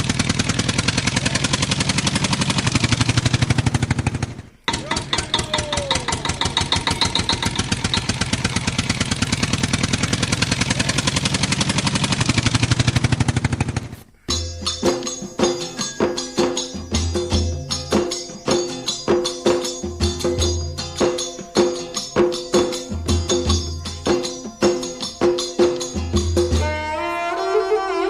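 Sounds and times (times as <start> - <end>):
engine chugging: 0.0 - 28.0
rhythmic music with tambourine: 14.3 - 28.0.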